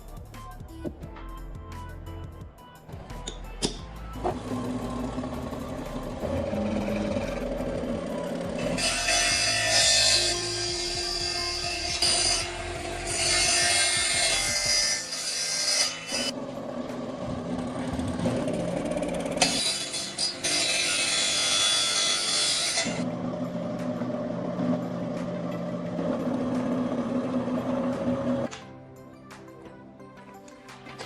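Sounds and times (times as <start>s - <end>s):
power sander humming: 4.2s - 14.7s.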